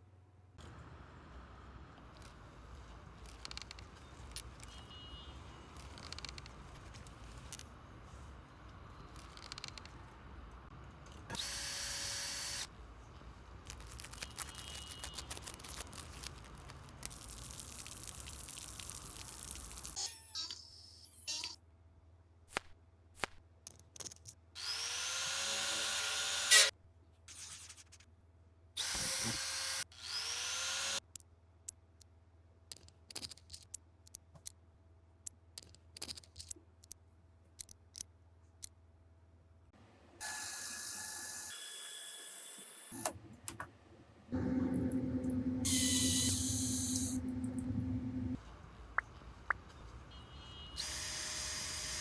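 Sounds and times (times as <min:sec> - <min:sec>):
power tool motor whirring: 0:11.4 - 0:12.7, 0:24.6 - 0:26.7, 0:28.8 - 0:31.0, 0:45.6 - 0:47.3, 0:50.8 - 0:52.0.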